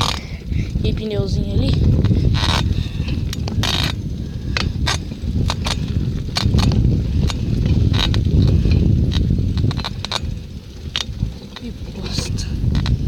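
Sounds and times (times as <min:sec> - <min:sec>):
wind rumbling on microphone: 0:00.0 - 0:13.0
sharp clicks and knocks: 0:04.6 - 0:13.0.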